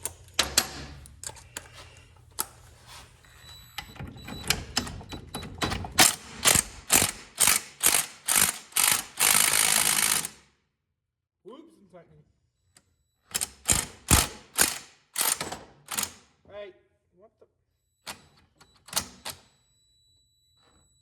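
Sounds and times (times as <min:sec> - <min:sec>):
ratchet wrench clicking: 0:06.4 - 0:10.4, 0:13.4 - 0:16.1.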